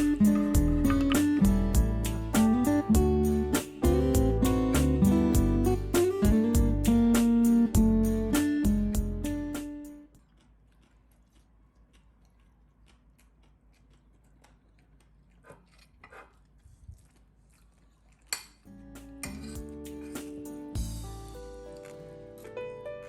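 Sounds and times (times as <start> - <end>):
background music: 0.0 - 10.1, 18.7 - 23.0
utensils clinking against dishes: 18.3 - 20.4.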